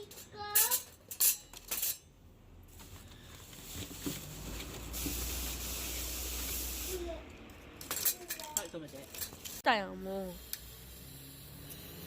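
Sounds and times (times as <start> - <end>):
metal utensils clinking: 0.0 - 2.2, 7.6 - 9.6
steady hiss: 4.3 - 7.2.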